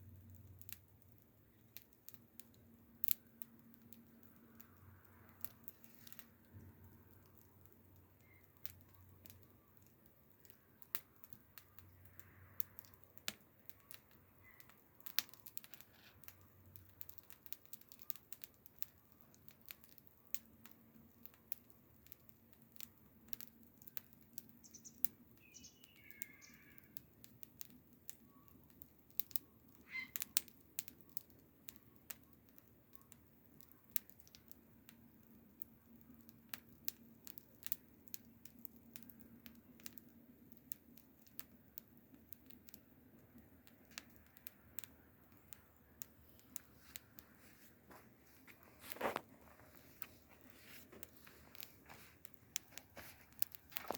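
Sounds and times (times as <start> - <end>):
wood fire crackling: 0.0 - 53.9
bird chirping: 24.6 - 26.8.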